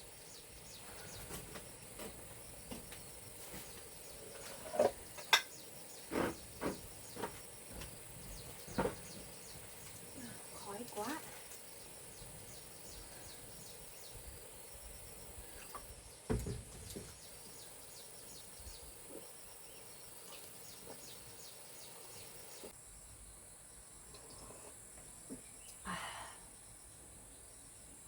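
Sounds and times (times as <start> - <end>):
crickets chirring: 0.0 - 28.0
dull thump: 16.3 - 17.2.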